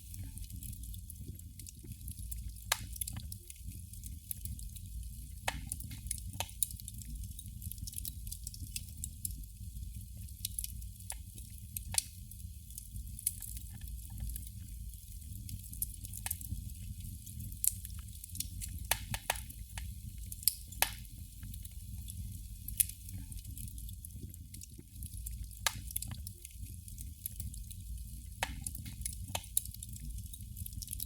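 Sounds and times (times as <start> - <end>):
candle flame crackling: 0.0 - 31.0.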